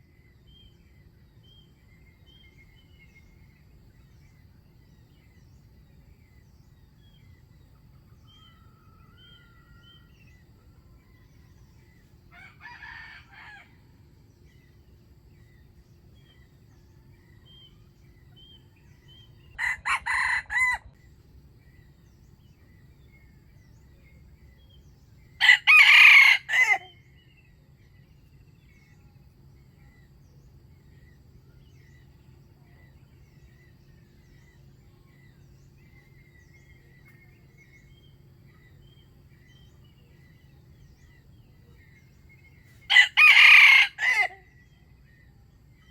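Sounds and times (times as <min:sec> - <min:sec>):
small birds chirping: 0:00.0 - 0:45.9
rooster crowing: 0:08.3 - 0:10.3, 0:12.3 - 0:13.9, 0:19.5 - 0:21.0, 0:25.4 - 0:27.0, 0:42.9 - 0:44.5.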